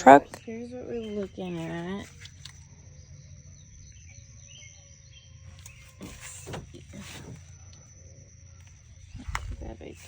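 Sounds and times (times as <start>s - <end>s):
faint bird chirps: 0.0s - 10.0s
wind rumble on microphone: 9.0s - 10.0s.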